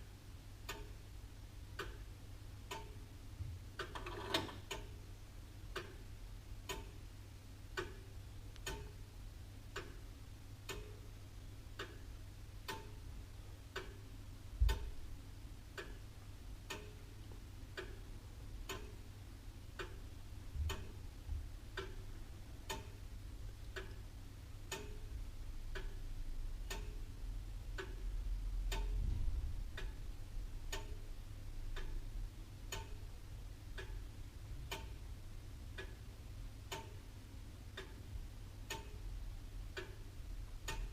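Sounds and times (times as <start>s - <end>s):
clock ticking: 0.6s - 1.0s, 1.7s - 3.1s, 3.7s - 5.1s, 5.7s - 9.1s, 9.7s - 13.0s, 13.7s - 15.0s, 15.7s - 19.1s, 19.7s - 29.1s, 29.7s - 40.9s
low rumble: 28.3s - 30.7s.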